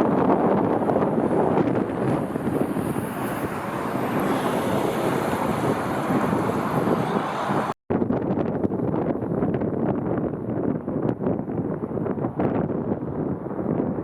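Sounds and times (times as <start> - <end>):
jet aircraft noise: 0.0 - 7.8
wind rumbling on microphone: 0.0 - 14.0
high engine whine: 0.1 - 7.8.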